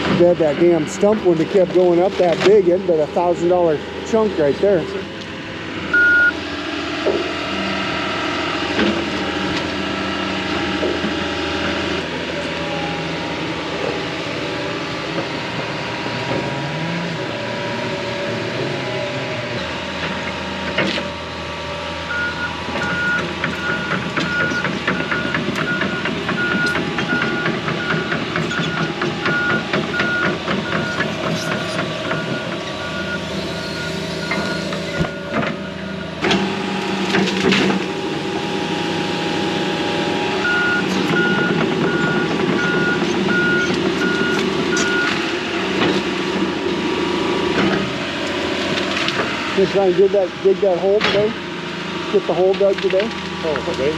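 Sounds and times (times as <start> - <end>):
diesel heavy equipment running: 0.0 - 53.9
backup alarm beeping: 5.9 - 6.4, 22.0 - 36.2, 40.4 - 45.2.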